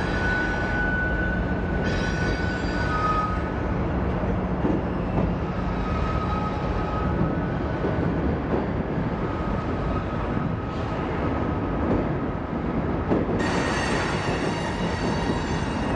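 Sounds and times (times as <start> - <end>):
high wheel squeals: 0.0 - 3.6, 5.7 - 7.2
train wheels rumbling on rail: 0.0 - 15.9.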